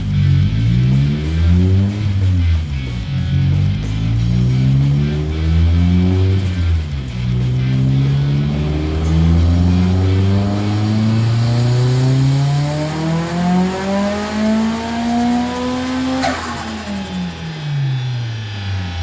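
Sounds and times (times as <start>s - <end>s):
turbocharged car engine revving: 0.0s - 19.0s
sharp burst on throttle close: 3.9s - 19.0s.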